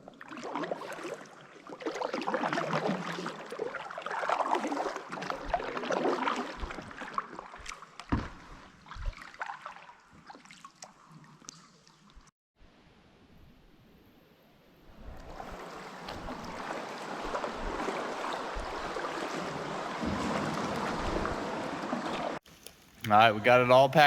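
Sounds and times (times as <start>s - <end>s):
paddle strokes splashing in water: 0.0s - 11.4s, 14.9s - 22.4s.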